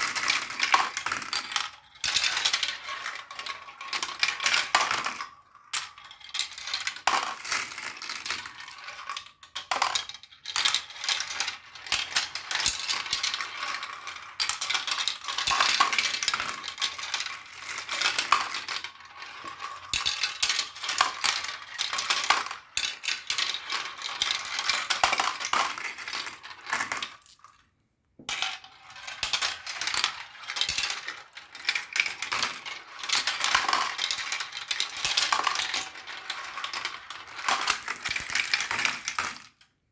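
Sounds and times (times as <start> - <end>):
marbles clattering down a run: 0.0 - 27.6, 28.3 - 39.6.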